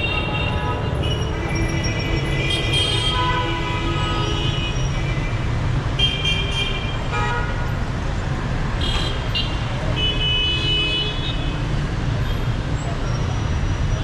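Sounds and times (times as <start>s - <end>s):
vehicle horns honking: 0.0s - 5.2s
city traffic rumble: 0.0s - 14.0s.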